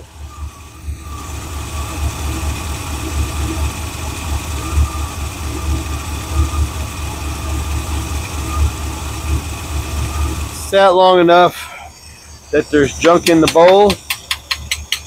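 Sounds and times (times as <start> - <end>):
engine idling rumble: 0.0 - 15.0.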